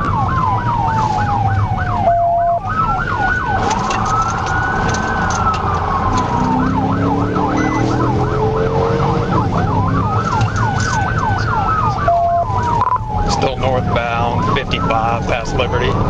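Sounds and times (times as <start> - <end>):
car engine and road noise: 0.0 - 16.0
police siren wailing and yelping: 0.0 - 16.0.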